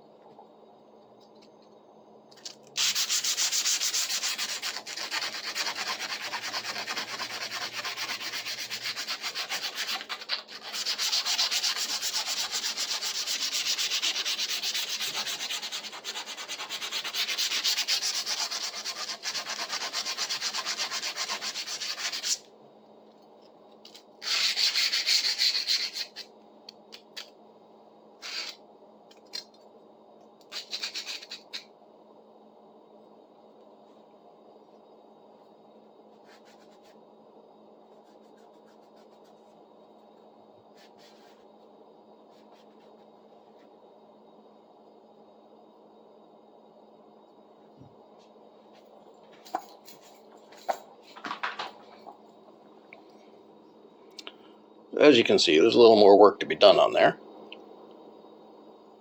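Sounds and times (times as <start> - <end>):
sanding rust off saw blade: 2.8 - 22.3.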